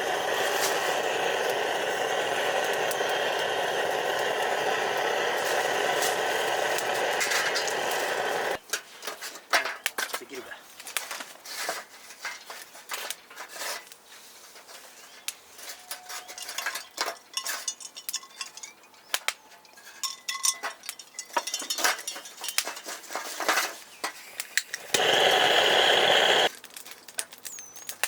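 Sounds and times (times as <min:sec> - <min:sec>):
loud steady hiss: 0:00.0 - 0:08.6, 0:24.6 - 0:26.5
metal cookware clinking: 0:16.0 - 0:18.9, 0:19.8 - 0:23.2.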